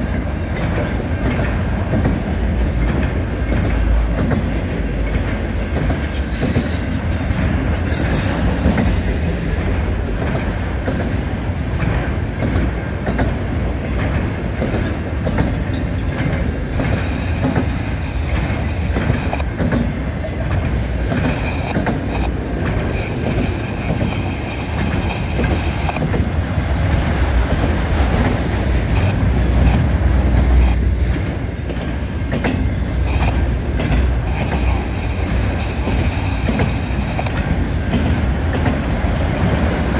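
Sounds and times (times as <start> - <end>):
train wheels clattering over rail joints: 0.0 - 39.9
low squealing ring: 7.8 - 10.0
high-pitched wheel squeal: 7.8 - 10.1.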